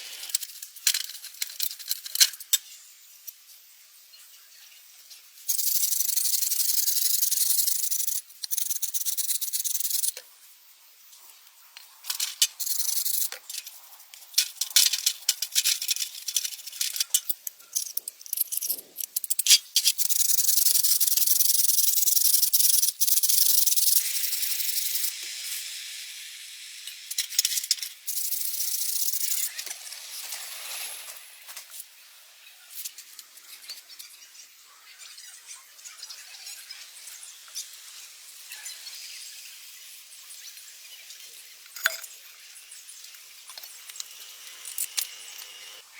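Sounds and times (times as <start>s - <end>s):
hissing bursts of air: 24.0s - 31.4s.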